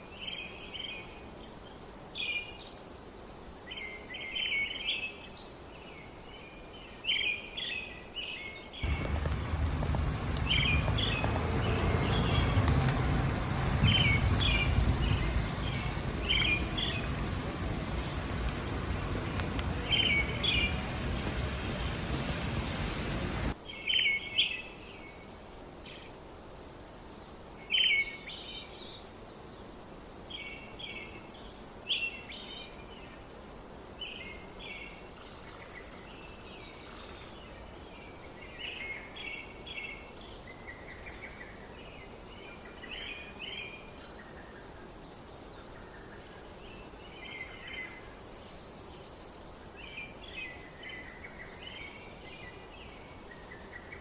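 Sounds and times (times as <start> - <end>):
small birds chirping: 0.0 - 25.2
outdoor background hiss: 0.0 - 54.0.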